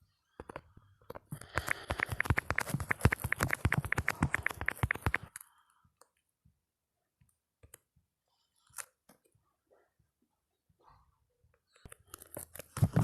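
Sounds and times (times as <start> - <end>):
phone keyboard clicks: 1.3 - 5.4.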